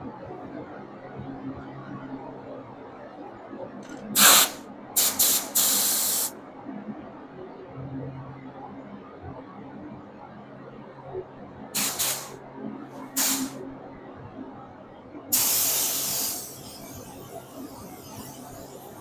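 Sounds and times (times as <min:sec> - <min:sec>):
spray gun hissing: 0:04.2 - 0:06.3, 0:11.8 - 0:12.4, 0:13.2 - 0:13.6, 0:15.3 - 0:16.6.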